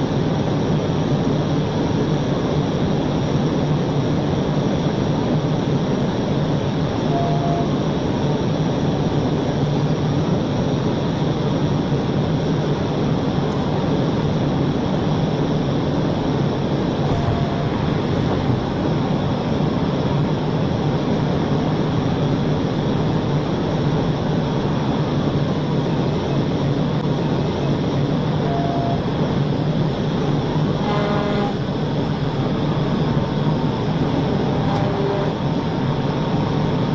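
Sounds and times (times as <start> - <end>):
car road and wind noise: 0.0 - 36.9.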